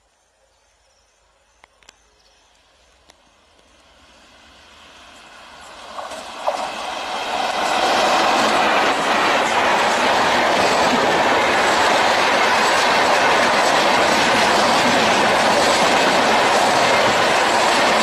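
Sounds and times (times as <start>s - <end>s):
train wheels clacking on rails: 5.2s - 18.0s.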